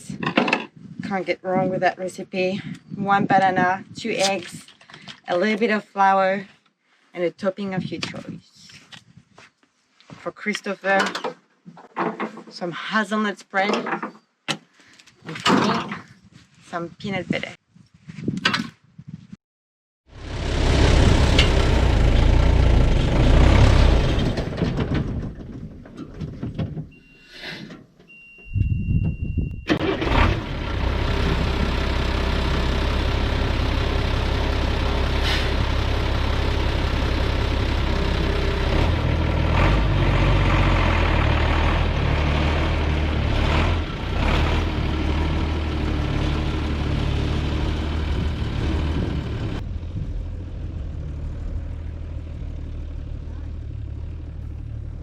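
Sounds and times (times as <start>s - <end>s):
diesel truck engine drone: 20.1s - 25.5s, 29.6s - 55.0s
high-pitched beep: 28.1s - 29.8s.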